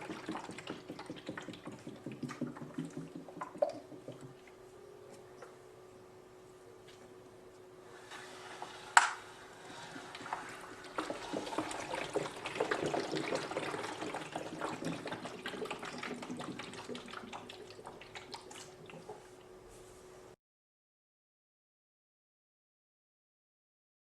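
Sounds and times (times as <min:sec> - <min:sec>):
liquid sloshing and trickling: 0:00.0 - 0:04.4, 0:09.6 - 0:19.4
faint steady hum: 0:00.0 - 0:20.4.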